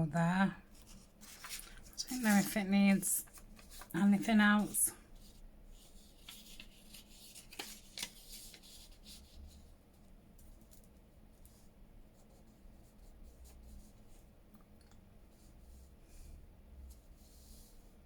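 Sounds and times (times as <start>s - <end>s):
low steady hum: 0.0s - 18.0s
paper taps and rustles: 6.2s - 8.8s.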